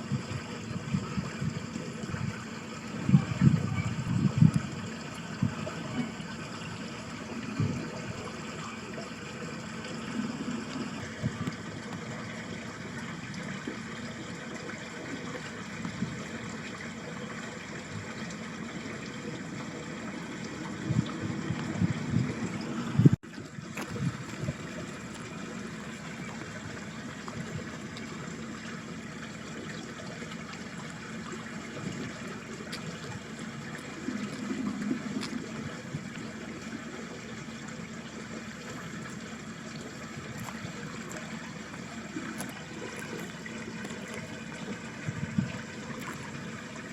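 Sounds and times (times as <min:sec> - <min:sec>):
wind rumbling on microphone: 0:00.0 - 0:08.4, 0:10.3 - 0:12.3, 0:20.6 - 0:27.9, 0:40.2 - 0:46.4
stream trickling and babbling: 0:00.0 - 0:46.9.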